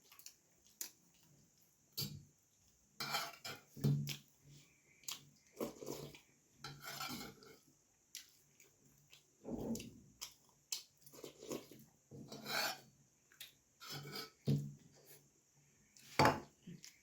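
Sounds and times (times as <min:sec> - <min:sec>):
food scraped on a plate: 0:03.0 - 0:03.7, 0:05.6 - 0:07.6, 0:11.2 - 0:12.9, 0:13.8 - 0:14.4
chewing: 0:07.0 - 0:11.9.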